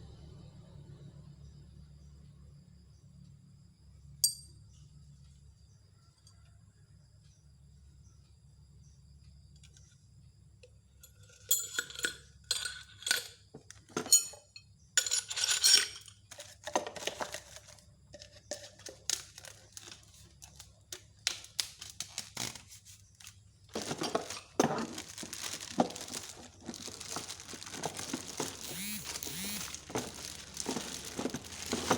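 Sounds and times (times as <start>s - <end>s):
clicks and clinks of hard parts: 11.1s - 19.9s
packaging crinkling and tearing: 19.1s - 20.7s, 21.3s - 31.9s.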